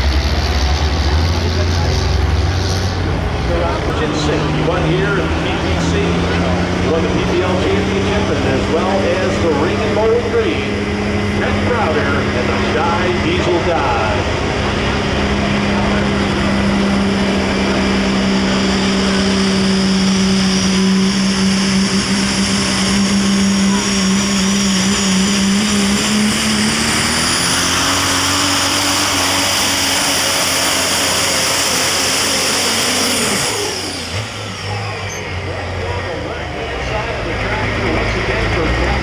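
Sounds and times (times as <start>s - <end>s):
diesel truck engine at full throttle: 0.0s - 39.0s
high turbo whine: 0.0s - 39.0s.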